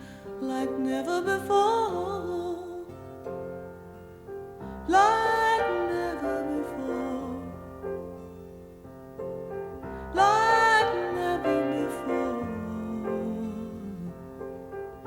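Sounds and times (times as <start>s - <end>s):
woman singing with vibrato: 0.0s - 3.0s, 4.8s - 7.7s, 10.0s - 14.4s
soft piano chords: 0.0s - 15.0s.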